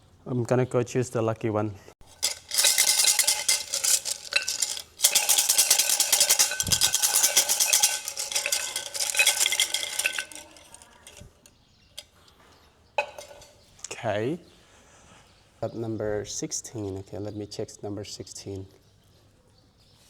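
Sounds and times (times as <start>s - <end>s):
wooden sticks rattling in a cup: 2.0s - 12.1s, 13.0s - 13.6s.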